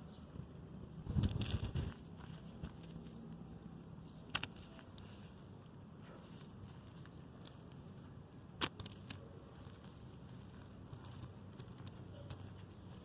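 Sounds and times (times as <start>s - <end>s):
chalk cracking: 1.1s - 13.0s.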